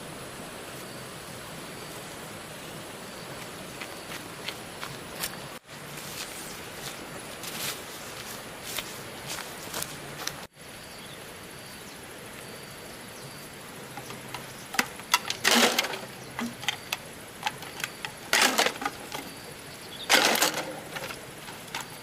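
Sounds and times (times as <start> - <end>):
wooden knocks and clicks: 14.0 - 19.3.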